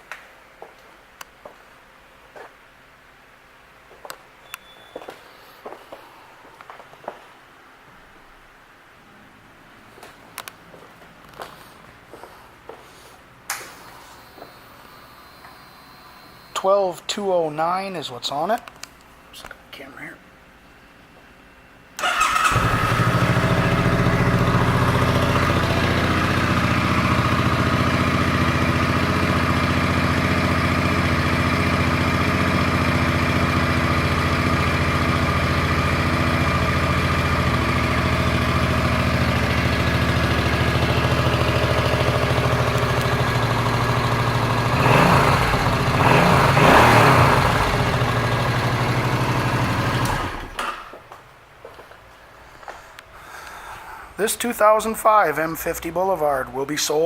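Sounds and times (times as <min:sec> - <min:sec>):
motorcycle engine starting and idling: 0:22.0 - 0:51.0.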